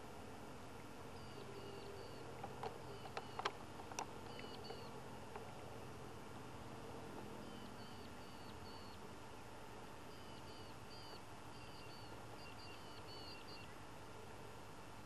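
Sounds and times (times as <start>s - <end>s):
steady low hum: 0.0s - 15.0s
small bird chirping: 1.2s - 3.6s, 4.2s - 5.0s, 7.4s - 9.0s, 10.1s - 13.8s
sharp clicks: 2.4s - 5.5s.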